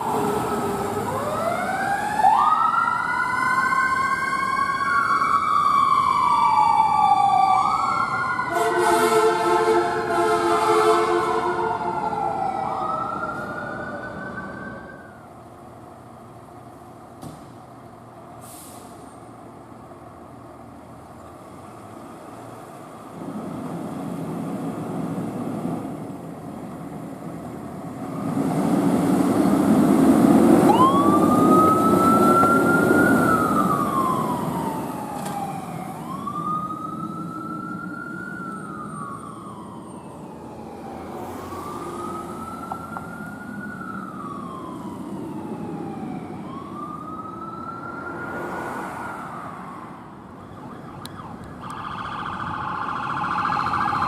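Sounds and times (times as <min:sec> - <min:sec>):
emergency siren wailing: 0:00.0 - 0:15.4, 0:28.7 - 0:54.0
heavy vehicle engine and road noise: 0:00.0 - 0:54.0.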